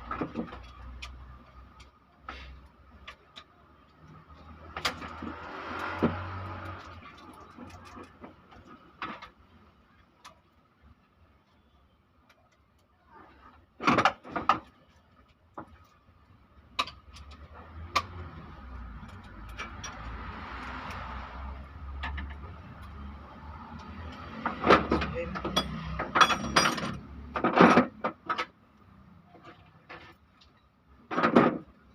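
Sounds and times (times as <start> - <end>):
hand tools clinking on metal: 25.0 - 27.1.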